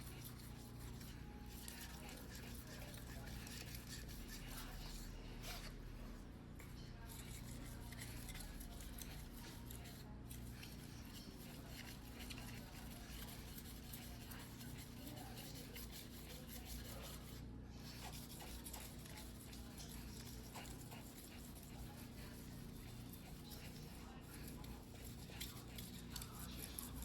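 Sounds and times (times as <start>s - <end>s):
knife scraping on whetstone: 0.0s - 5.8s.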